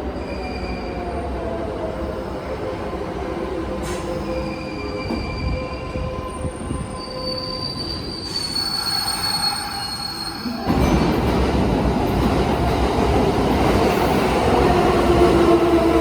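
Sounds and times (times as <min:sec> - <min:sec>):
train wheels squealing: 0:03.8 - 0:11.0.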